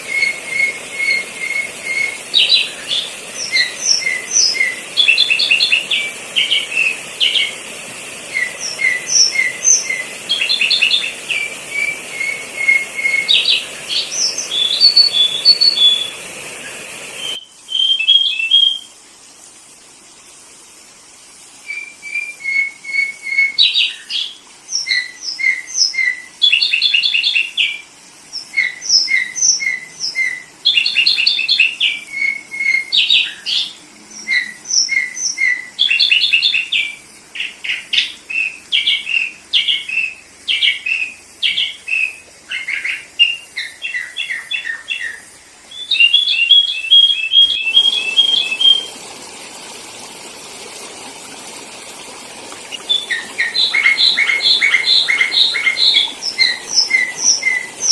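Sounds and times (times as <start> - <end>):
background hiss: 0.0 - 57.9
bulbul chirping calls: 38.8 - 48.9, 52.5 - 57.9.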